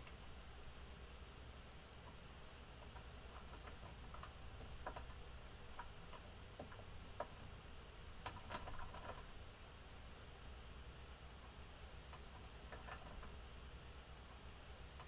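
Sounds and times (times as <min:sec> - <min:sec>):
budgerigars clicking and tapping: 0:02.8 - 0:07.4.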